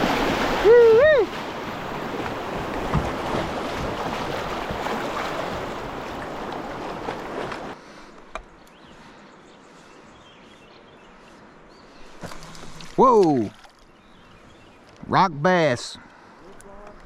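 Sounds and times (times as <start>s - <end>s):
river water rushing: 0.0s - 7.8s.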